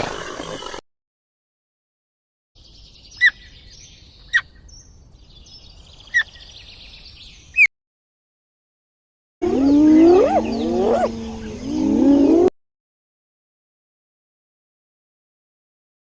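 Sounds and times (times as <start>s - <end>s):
bird giving sharp calls: 9.4s - 12.5s
high chirping: 9.4s - 12.5s.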